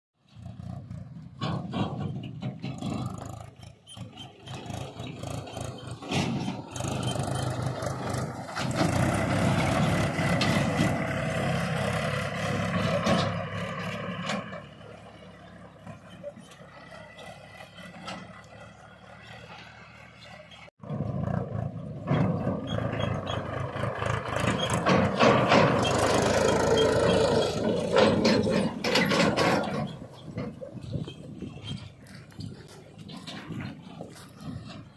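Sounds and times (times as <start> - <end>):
diesel engine revving: 0.2 - 34.9
metallic clanks and knocks: 1.4 - 11.1, 24.2 - 34.9.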